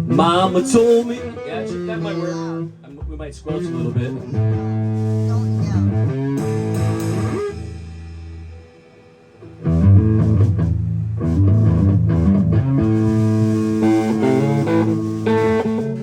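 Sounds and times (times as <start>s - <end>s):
amplified guitars playing a riff: 0.0s - 16.0s.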